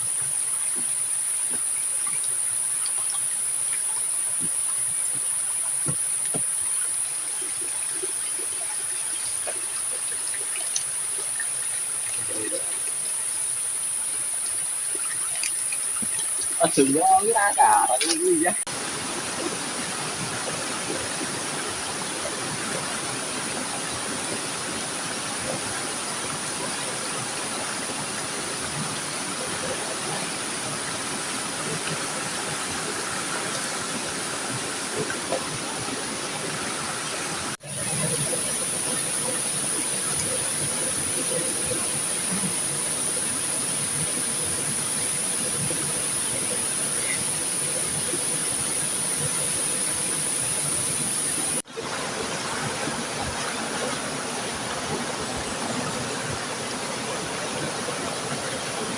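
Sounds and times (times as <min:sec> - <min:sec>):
river water rushing: 0:08.9 - 0:58.9
high-pitched hiss: 0:12.2 - 0:18.7.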